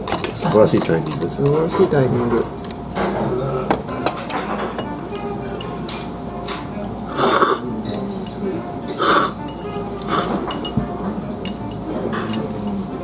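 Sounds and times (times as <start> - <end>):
dishes clinking: 0.0 - 13.0
background music: 4.2 - 13.0
noodles slurped: 7.1 - 7.6, 9.0 - 9.4, 10.0 - 10.4.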